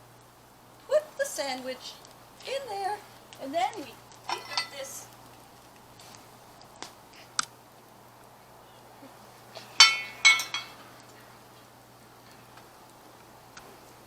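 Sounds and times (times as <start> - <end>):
ringing metallic clinks: 9.8 - 10.8.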